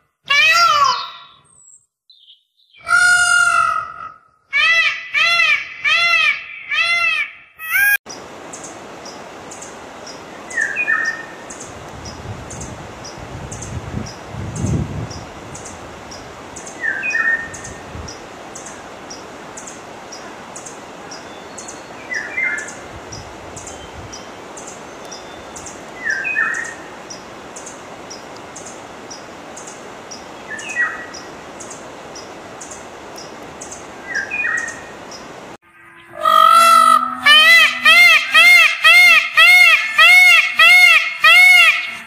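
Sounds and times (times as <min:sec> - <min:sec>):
bird calling: 0:33.6 - 0:42.0.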